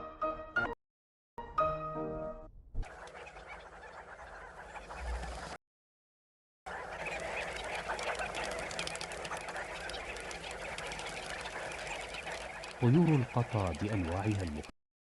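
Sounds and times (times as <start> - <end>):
flock of birds chirping: 2.9 - 5.6, 6.7 - 14.7.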